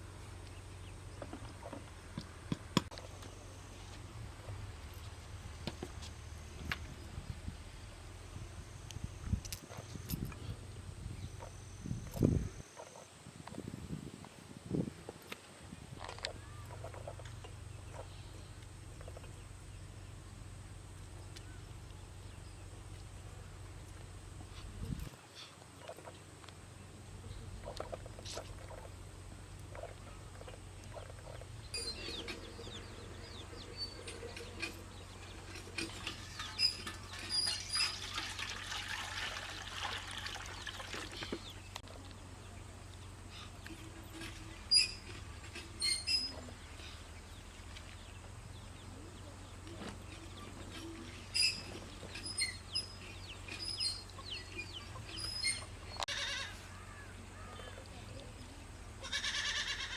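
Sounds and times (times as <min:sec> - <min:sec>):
steady low hum: 0:00.0 - 0:37.2
small birds chirping: 0:21.0 - 0:38.2, 0:40.6 - 0:59.2
chickens clucking: 0:27.4 - 0:29.0, 0:29.6 - 0:38.3, 0:48.7 - 0:56.2.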